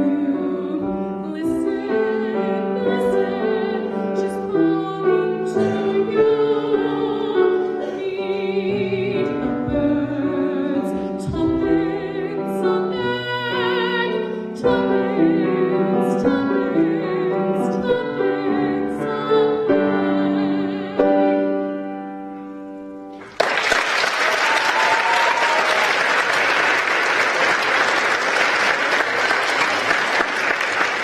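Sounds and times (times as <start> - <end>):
classical singing with vibrato: 0.0 - 22.1
piano accompaniment: 0.0 - 23.8.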